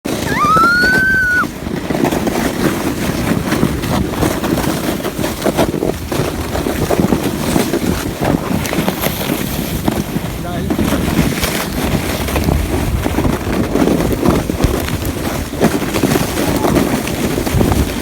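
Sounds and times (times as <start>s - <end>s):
sled sliding over snow: 0.1s - 18.0s
child squealing: 0.2s - 1.5s.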